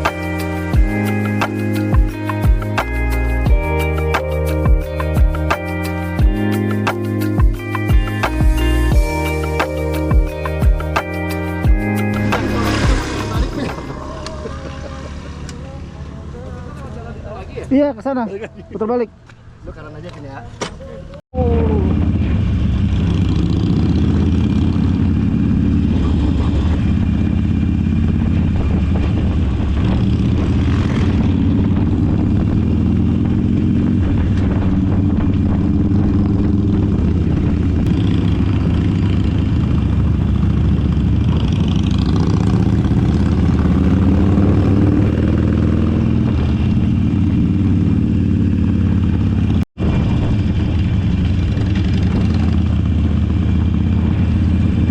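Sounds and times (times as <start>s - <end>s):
motorcycle engine running: 21.4s - 54.9s.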